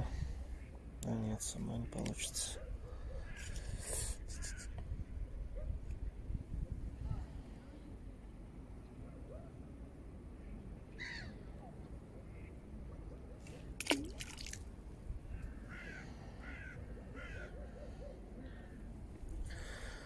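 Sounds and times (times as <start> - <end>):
low steady background noise: 0.0 - 20.0
harsh crow-like bird calls: 3.1 - 3.6, 10.9 - 11.5, 15.2 - 18.9.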